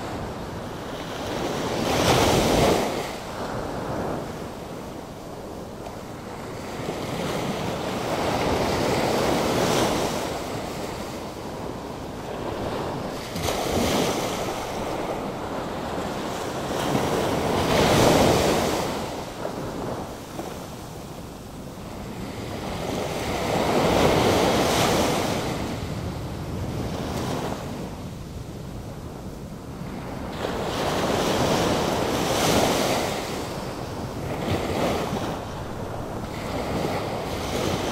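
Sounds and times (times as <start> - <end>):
ocean waves breaking: 0.0 - 28.1, 29.7 - 37.9.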